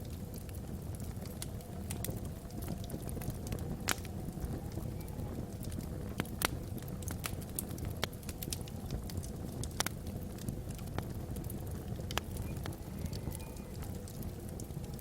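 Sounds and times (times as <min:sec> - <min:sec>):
low fire rumble: 0:00.0 - 0:15.0
wood fire crackling and popping: 0:00.0 - 0:15.0.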